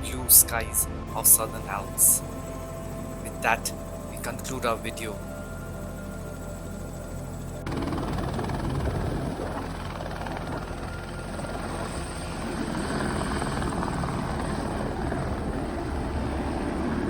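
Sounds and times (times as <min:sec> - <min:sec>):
helicopter rotor and engine: 0:00.0 - 0:17.0.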